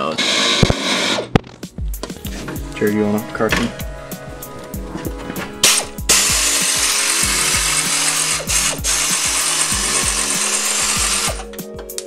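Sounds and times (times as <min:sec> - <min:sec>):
background music with steady beat: 0:00.2 - 0:12.0
power tool running: 0:04.5 - 0:11.5.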